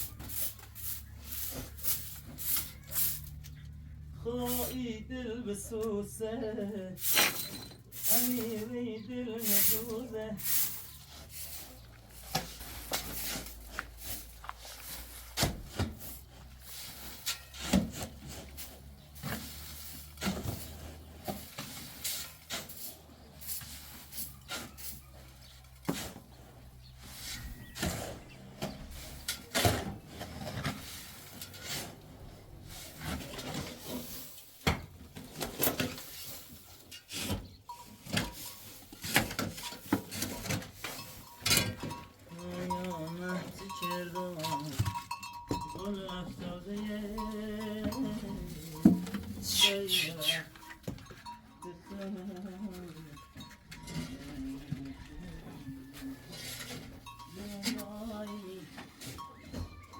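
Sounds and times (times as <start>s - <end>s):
scraping and rubbing: 7.0s - 42.0s, 53.8s - 59.4s.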